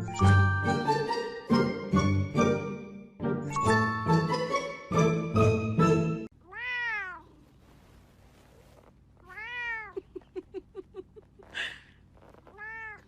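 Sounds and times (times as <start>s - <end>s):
jingly music: 0.0s - 6.3s
cat meowing: 6.4s - 7.4s, 9.2s - 10.0s, 12.5s - 13.0s.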